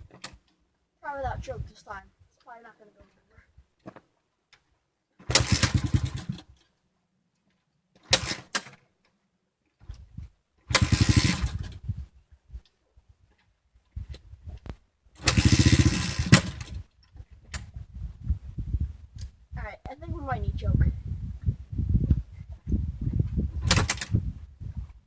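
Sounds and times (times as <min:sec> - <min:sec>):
motorcycle engine starting and dying: 0:05.2 - 0:06.6, 0:08.0 - 0:08.8, 0:10.6 - 0:11.9, 0:15.2 - 0:17.8, 0:23.5 - 0:24.4.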